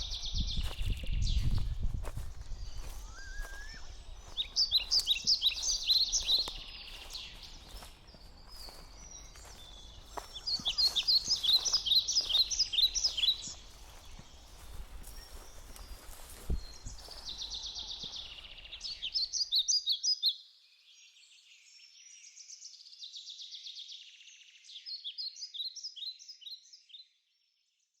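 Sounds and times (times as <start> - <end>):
songbird trilling and chirping: 0.0 - 20.4.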